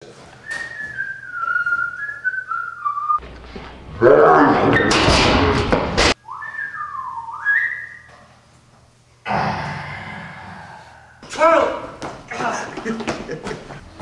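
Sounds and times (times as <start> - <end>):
person whistling: 0.4 - 3.2, 6.2 - 8.1.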